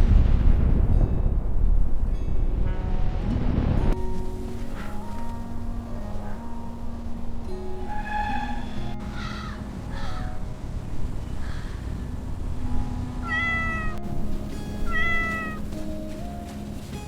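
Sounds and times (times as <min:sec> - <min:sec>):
soft background music: 0:00.1 - 0:17.0
cat meowing: 0:13.2 - 0:14.0, 0:14.9 - 0:15.6.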